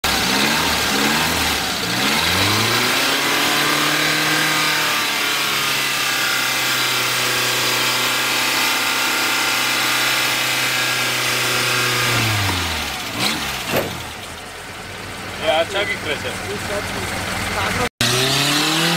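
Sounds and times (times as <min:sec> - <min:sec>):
off-road vehicle engine revving: 0:00.0 - 0:18.9
sharp knock: 0:13.7 - 0:14.0.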